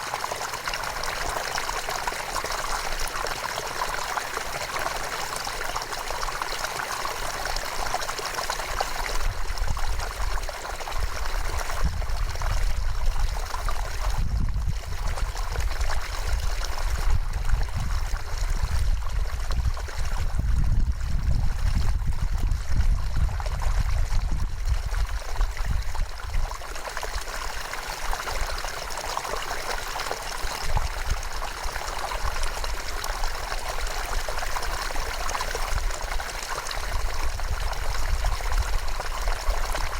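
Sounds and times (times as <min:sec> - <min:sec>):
river water rushing and trickling: 0:00.0 - 0:20.4, 0:22.9 - 0:39.9.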